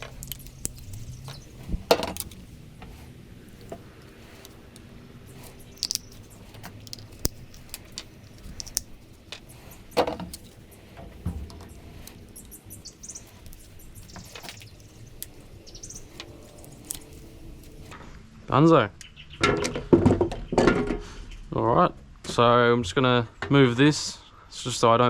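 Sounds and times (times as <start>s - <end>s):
pliers clicking on brass pins: 0.0s - 11.3s, 11.9s - 17.9s.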